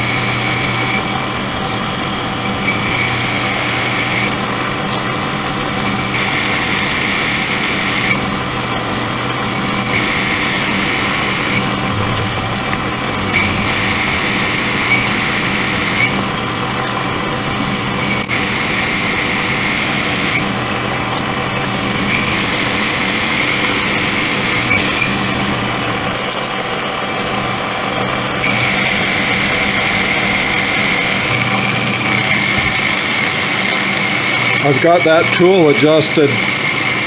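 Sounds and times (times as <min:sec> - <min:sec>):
machine tool cutting metal: 0:00.0 - 0:26.8, 0:28.4 - 0:37.0.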